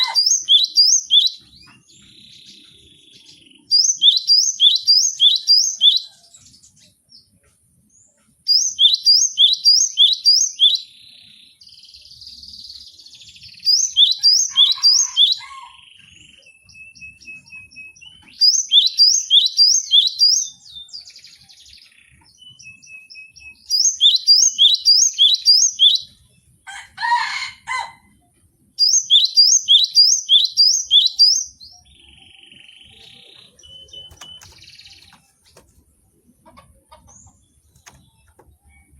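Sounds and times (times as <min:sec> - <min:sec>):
harsh bird call: 0:00.0 - 0:01.2
bird singing ringing notes: 0:00.0 - 0:06.2, 0:28.8 - 0:35.3.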